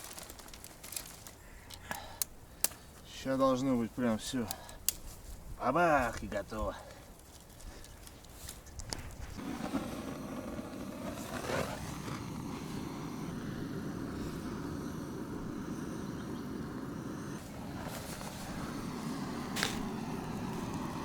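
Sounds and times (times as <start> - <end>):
gas burner rushing: 9.4 - 21.0.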